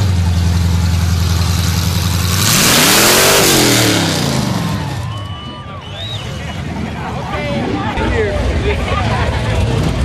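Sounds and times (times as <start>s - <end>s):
car engine revving on open headers: 0.0s - 5.0s.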